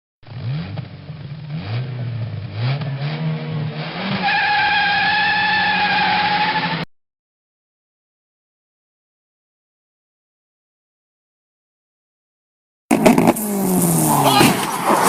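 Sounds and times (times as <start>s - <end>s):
car engine accelerating: 0.2s - 6.9s, 12.9s - 15.0s
tyre squeal: 4.1s - 6.9s, 12.9s - 15.0s.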